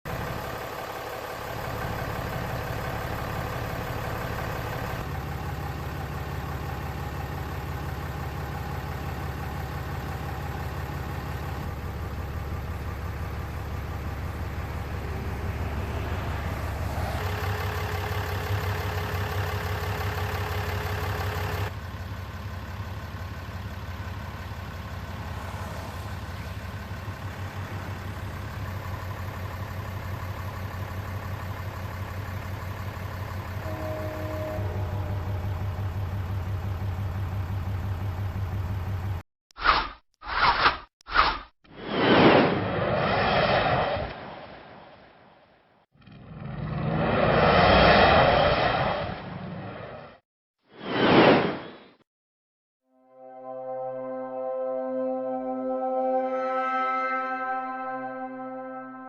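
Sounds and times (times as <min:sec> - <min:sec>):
pickup truck engine idling: 0:00.1 - 0:39.2.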